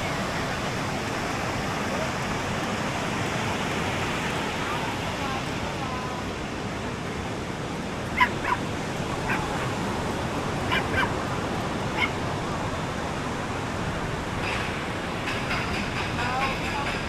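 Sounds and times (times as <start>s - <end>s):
surf washing: 0.0s - 17.0s
dog barking: 8.1s - 12.3s.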